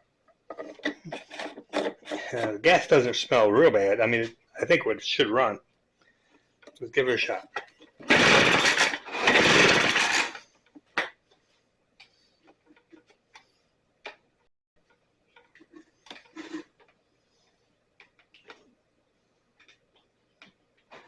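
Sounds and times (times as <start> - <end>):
engine cranking without catching: 8.0 - 10.4
recoil starter pull: 8.0 - 10.4.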